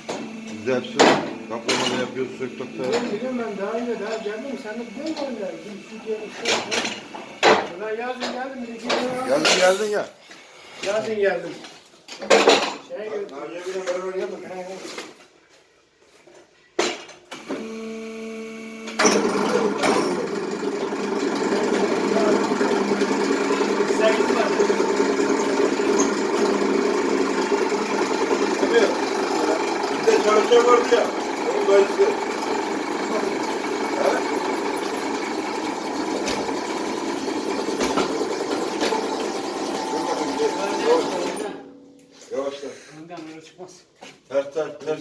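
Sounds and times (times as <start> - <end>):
machine motor humming: 0.0 - 10.0, 17.4 - 41.6
loud mechanical rattle: 19.0 - 41.4.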